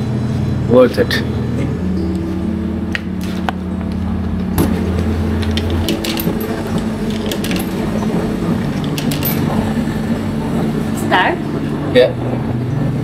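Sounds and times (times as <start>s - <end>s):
vending machine humming: 0.0s - 13.0s
clicks and clinks of handling: 8.8s - 9.5s.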